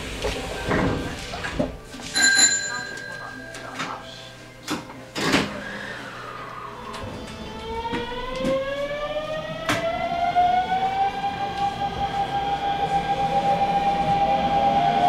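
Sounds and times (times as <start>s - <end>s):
electric train motor whine: 5.5s - 15.0s.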